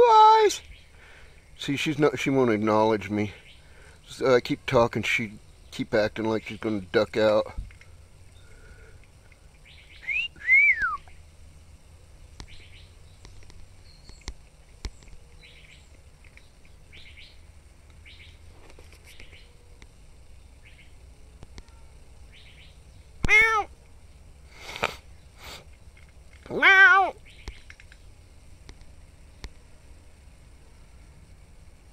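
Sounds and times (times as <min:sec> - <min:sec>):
faint bird chirps: 0:09.6 - 0:11.2, 0:12.2 - 0:17.4, 0:21.6 - 0:23.2
whistled notes: 0:10.0 - 0:11.1
cat meowing: 0:23.2 - 0:23.7, 0:26.5 - 0:27.2.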